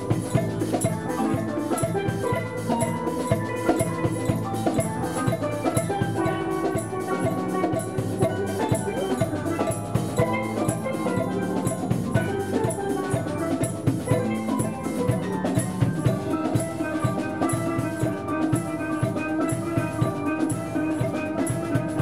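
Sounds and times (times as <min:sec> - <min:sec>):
drums keeping steady beat: 0:00.0 - 0:22.0
steel pan band playing: 0:00.0 - 0:22.0.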